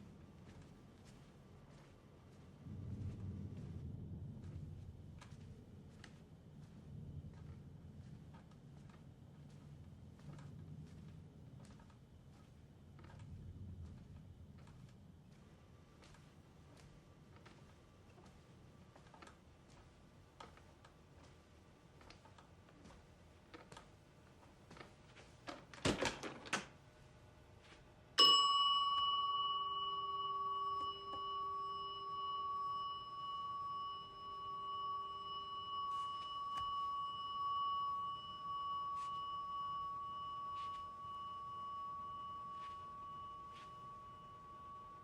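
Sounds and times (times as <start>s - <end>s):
desk bell ringing: 28.2s - 45.0s.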